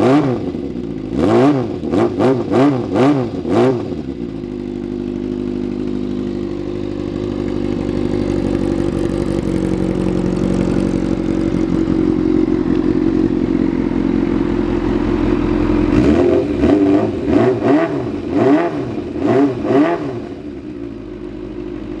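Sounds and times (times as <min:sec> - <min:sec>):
engine revving in throttle blips: 0:00.0 - 0:04.2, 0:14.4 - 0:20.7
motorcycle engine idling: 0:00.0 - 0:22.0.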